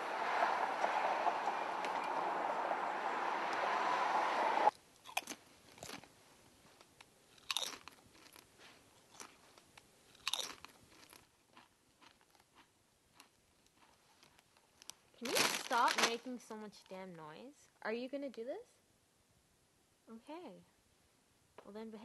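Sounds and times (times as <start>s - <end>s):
steady rushing noise: 0.0s - 4.7s.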